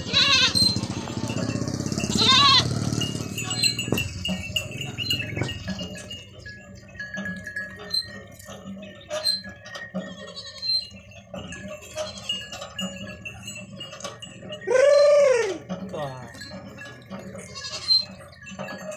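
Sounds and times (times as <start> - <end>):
small bells tinkling: 0.0 - 18.9
light clinks and knocks: 0.1 - 14.7, 15.6 - 18.9.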